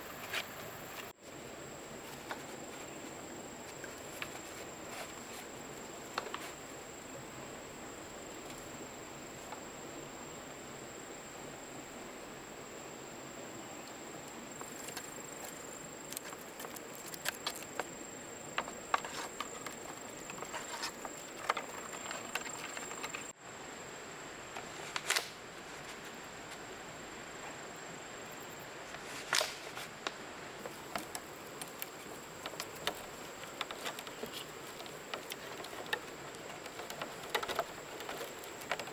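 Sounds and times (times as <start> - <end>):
jungle background hiss: 0.0 - 38.9
handling clicks and knocks: 14.6 - 23.3, 30.6 - 38.9.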